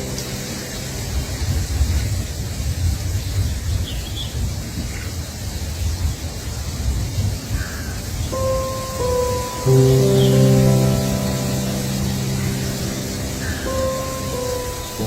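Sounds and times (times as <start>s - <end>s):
steady hiss: 0.0s - 15.0s
faint bird chirps: 7.7s - 15.0s.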